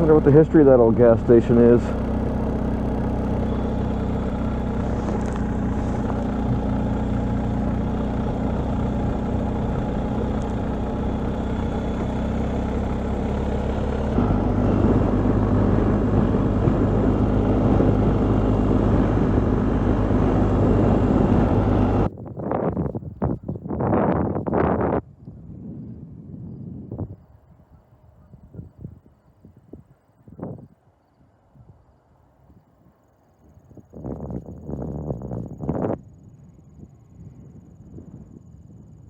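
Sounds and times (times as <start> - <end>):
motorcycle engine running: 0.0 - 22.1
road noise: 0.0 - 22.1
wind noise: 14.1 - 30.8, 32.4 - 39.0.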